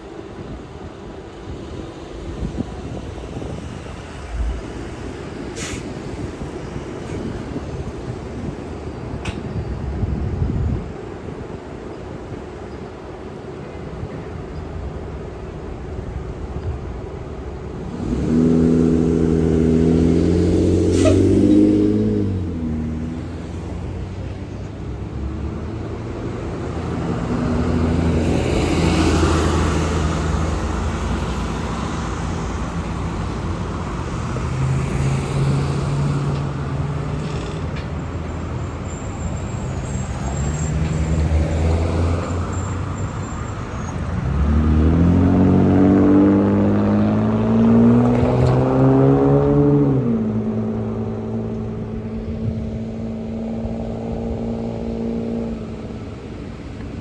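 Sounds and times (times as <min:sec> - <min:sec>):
street traffic: 0:00.0 - 0:57.0
bus engine running: 0:13.2 - 0:48.8, 0:50.2 - 0:57.0.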